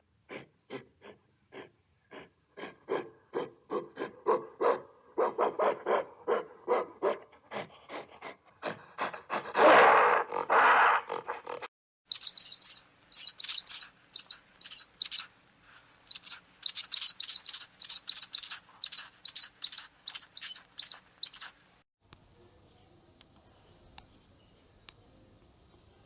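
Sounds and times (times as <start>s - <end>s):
small bird chirping: 12.1s - 15.3s, 16.1s - 21.6s.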